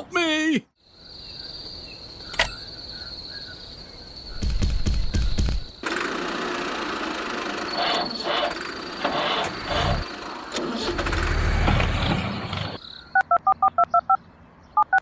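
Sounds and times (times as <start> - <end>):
engine running: 5.8 - 12.8.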